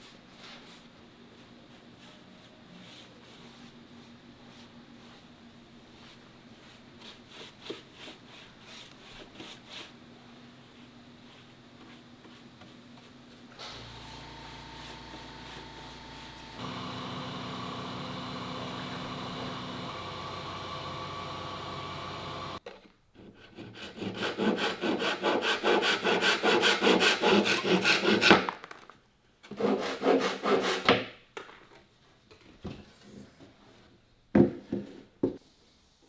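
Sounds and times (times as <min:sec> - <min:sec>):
machine hum: 0:13.6 - 0:22.6
saw cutting wood: 0:23.6 - 0:28.3.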